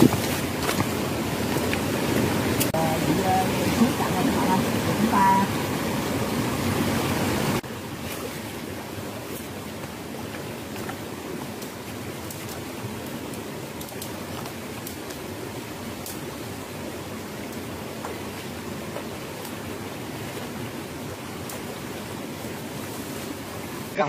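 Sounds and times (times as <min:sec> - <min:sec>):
water running in rocky stream: 0:00.0 - 0:24.0.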